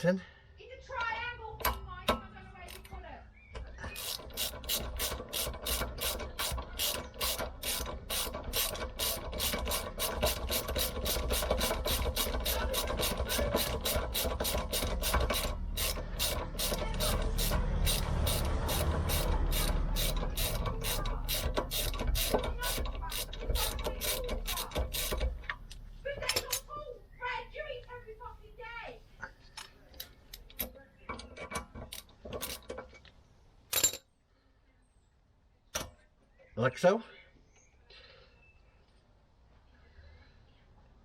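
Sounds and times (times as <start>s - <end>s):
ratchet wrench clicking: 3.7s - 26.6s.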